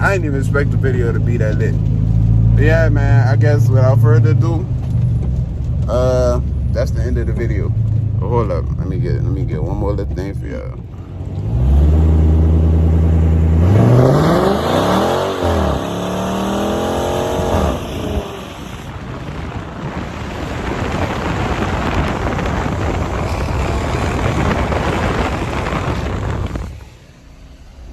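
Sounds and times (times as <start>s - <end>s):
car engine revving: 0.0s - 27.9s
steady rushing noise: 12.4s - 27.9s.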